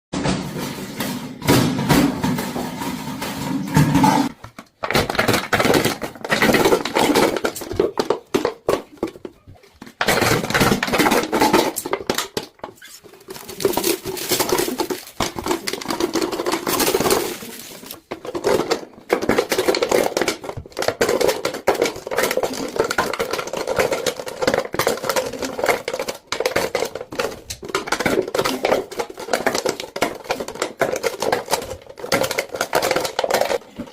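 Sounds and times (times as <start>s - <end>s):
objects clattering and knocking: 0.1s - 33.9s.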